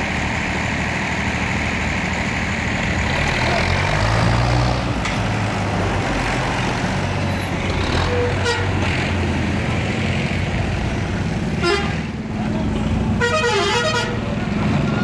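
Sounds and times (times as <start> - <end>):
tractor diesel engine running: 0.0 - 3.8.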